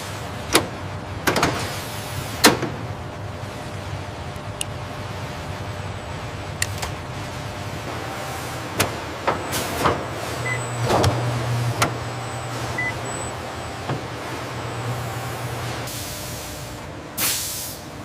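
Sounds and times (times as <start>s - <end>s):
low machine hum: 0.0s - 17.2s
short high beeps: 10.4s - 10.9s, 12.2s - 13.4s.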